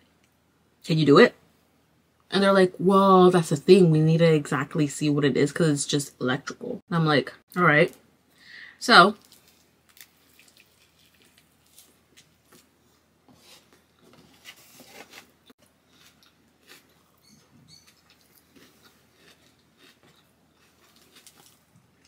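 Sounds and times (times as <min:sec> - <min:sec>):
chewing with wet mouth clicks: 0:09.2 - 0:12.6, 0:16.0 - 0:21.6.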